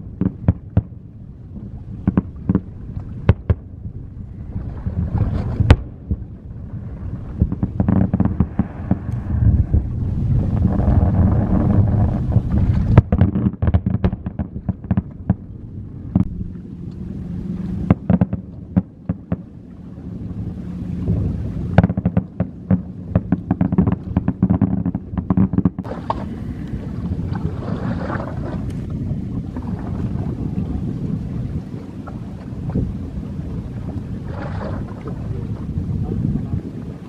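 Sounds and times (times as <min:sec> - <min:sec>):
low rumble: 0:00.0 - 0:37.0
fireworks bursts and pops: 0:05.2 - 0:06.2, 0:07.4 - 0:09.9, 0:10.5 - 0:15.4, 0:21.8 - 0:26.3.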